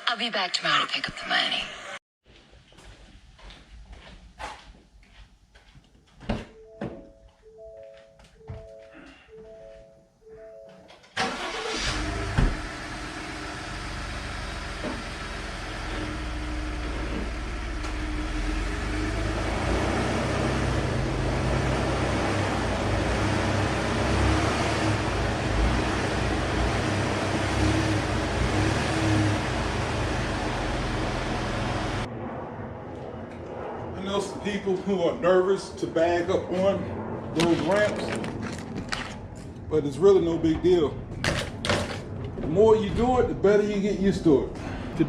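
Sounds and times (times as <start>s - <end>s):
truck engine running: 11.2s - 32.1s.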